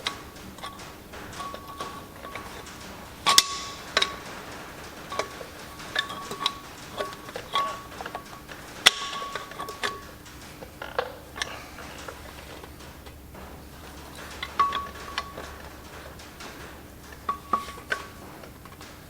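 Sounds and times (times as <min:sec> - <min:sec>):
metal tools tapping on bolts: 0:00.0 - 0:19.0.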